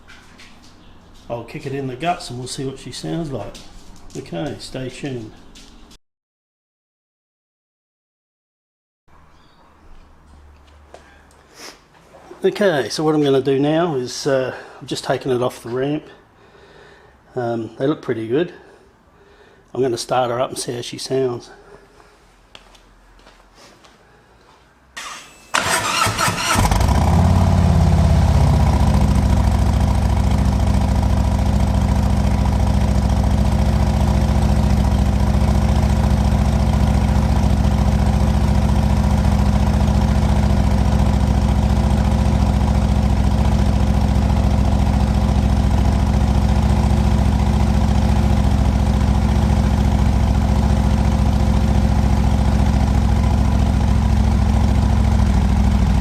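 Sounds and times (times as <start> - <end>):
motorcycle engine starting and idling: 25.0 - 56.0.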